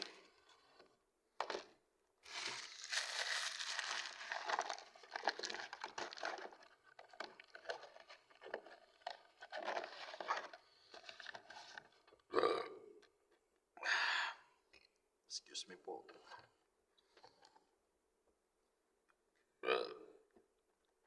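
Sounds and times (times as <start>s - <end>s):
food packaging crinkling: 2.2s - 11.8s.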